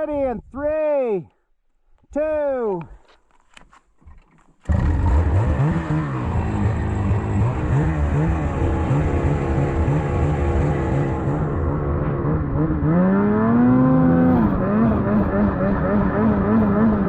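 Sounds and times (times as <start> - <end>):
engine running and revving: 4.7 - 17.0.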